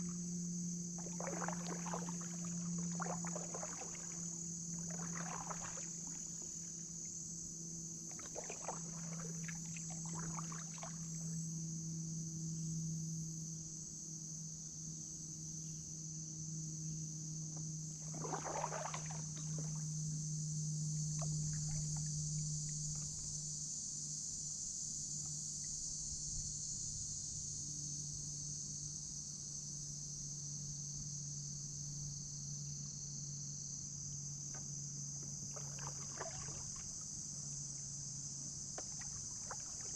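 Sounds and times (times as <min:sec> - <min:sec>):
high-pitched insect chorus: 0:00.0 - 0:39.9
low steady hum: 0:00.0 - 0:39.9
paddle strokes splashing water: 0:01.0 - 0:07.2, 0:08.0 - 0:11.4, 0:18.0 - 0:19.9, 0:21.1 - 0:23.3, 0:34.6 - 0:37.9, 0:38.6 - 0:39.9.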